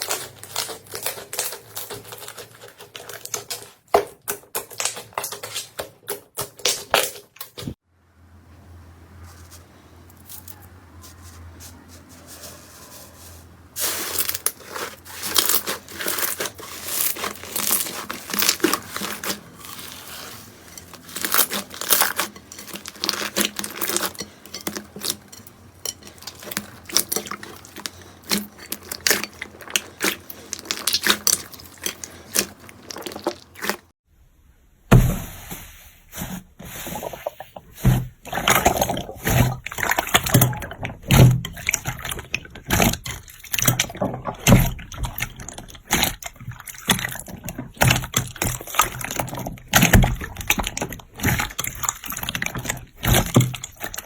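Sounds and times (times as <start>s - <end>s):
slime squelching thuds: 34.9s - 35.6s, 36.2s - 54.0s.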